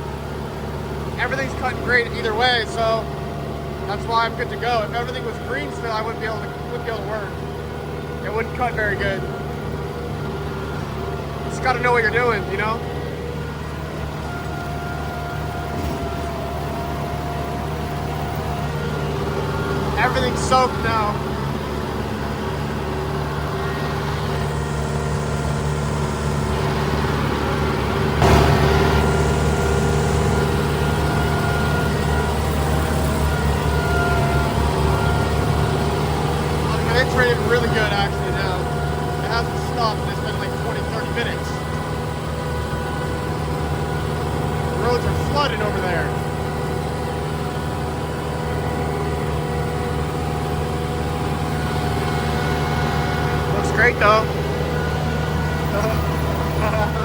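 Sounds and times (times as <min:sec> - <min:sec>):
rotary mower cutting: 0:00.0 - 0:57.0
tractor engine running: 0:00.0 - 0:57.0.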